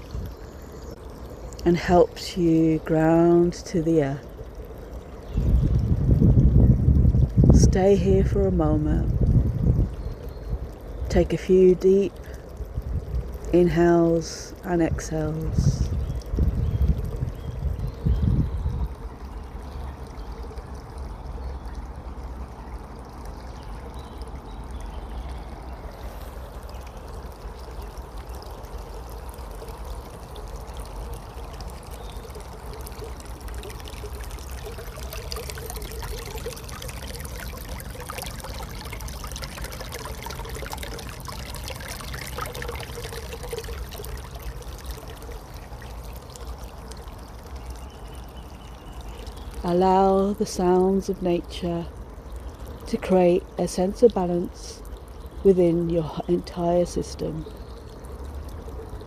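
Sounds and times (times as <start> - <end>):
stream water trickling and splashing: 0.0 - 59.0
wind rumble on microphone: 5.2 - 11.2, 12.6 - 13.6, 14.8 - 19.2.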